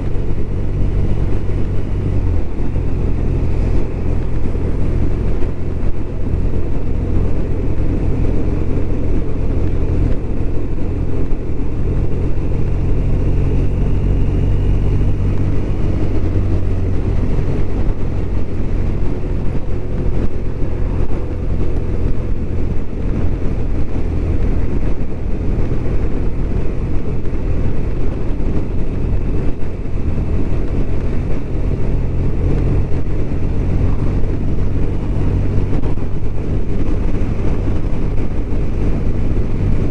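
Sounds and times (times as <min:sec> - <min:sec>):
motorcycle engine running: 0:00.0 - 0:39.9
road noise: 0:00.0 - 0:39.9
wind noise: 0:00.0 - 0:39.9.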